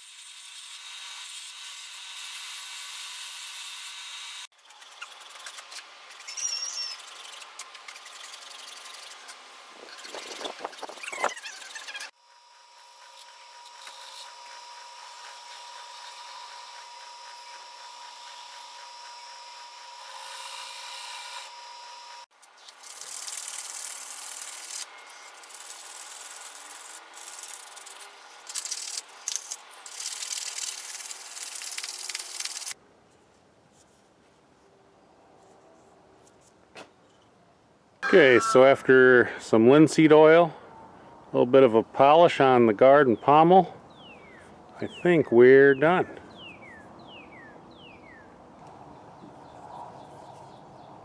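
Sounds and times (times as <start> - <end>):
sanding knife handle: 4.6 - 12.1, 22.4 - 32.8
faint steady tone: 38.0 - 39.0.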